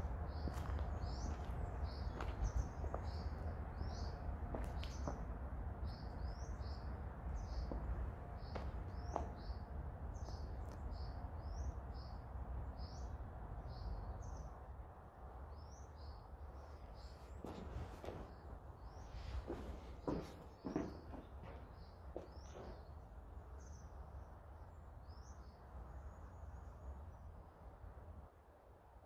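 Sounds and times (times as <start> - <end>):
steady low rumble: 0.0 - 14.5
soft knocks: 19.5 - 22.8.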